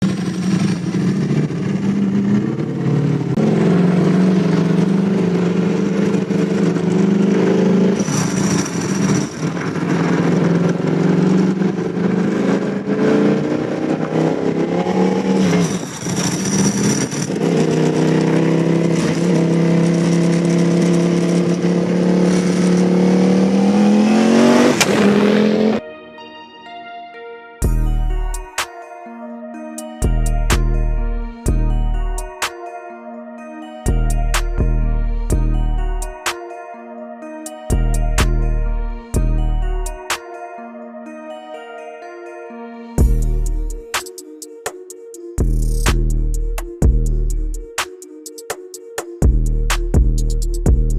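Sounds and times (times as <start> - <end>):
motorcycle engine revving: 0.0 - 25.8.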